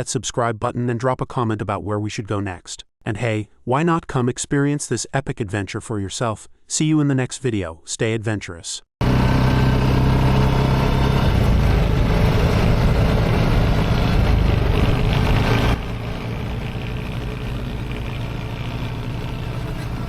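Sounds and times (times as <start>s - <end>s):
buggy engine running: 9.0s - 20.0s.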